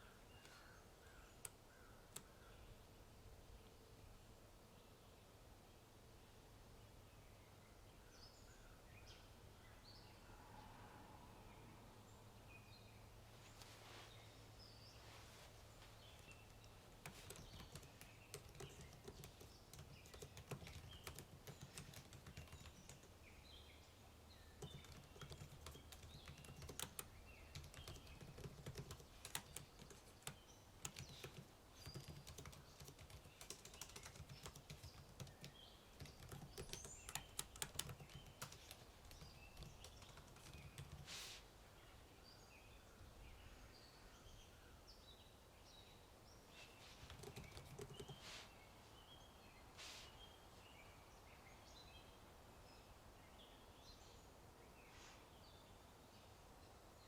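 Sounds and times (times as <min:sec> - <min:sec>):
faint birdsong: 0:00.0 - 0:57.0
computer keyboard typing: 0:16.2 - 0:23.2, 0:24.6 - 0:41.1, 0:47.1 - 0:48.2.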